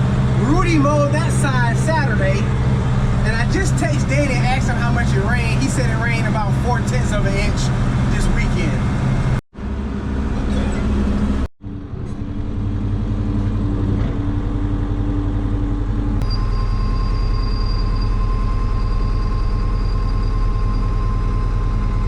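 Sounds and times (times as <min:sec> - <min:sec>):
thin steady whine: 0:00.0 - 0:13.5, 0:14.4 - 0:22.0
air conditioner blowing: 0:00.0 - 0:16.2
tractor engine drone: 0:00.0 - 0:22.0.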